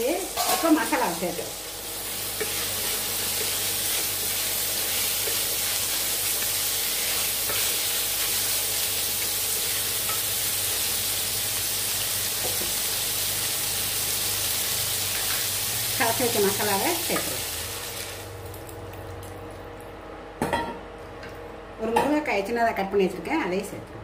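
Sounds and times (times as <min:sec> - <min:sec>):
food sizzling in oil: 0:00.0 - 0:18.4
spatula stirring in a pan: 0:02.0 - 0:10.4.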